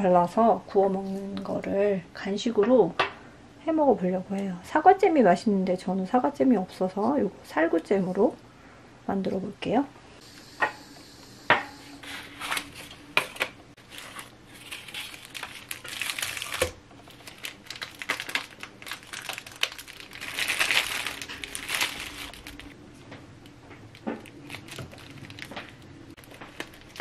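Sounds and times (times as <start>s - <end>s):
food packaging crinkling: 13.8s - 22.8s, 23.9s - 27.0s.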